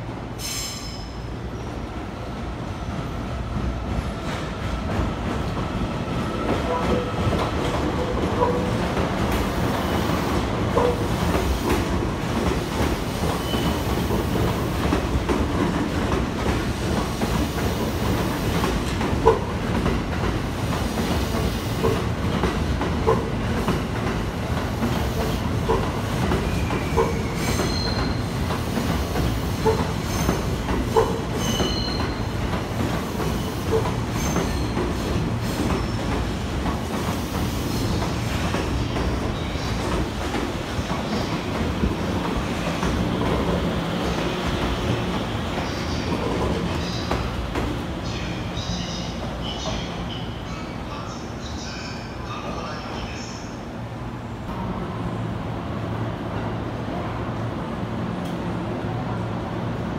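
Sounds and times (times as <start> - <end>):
train wheels rumbling: 0.0 - 50.2
train wheel squeals: 0.4 - 1.7, 13.1 - 14.1, 26.4 - 32.4, 33.2 - 36.2.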